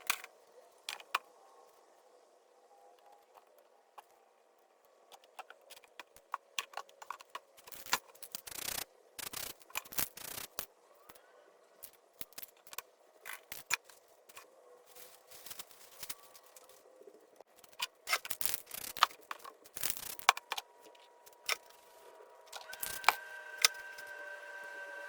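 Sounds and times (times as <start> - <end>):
sharp clicks: 5.1 - 11.2.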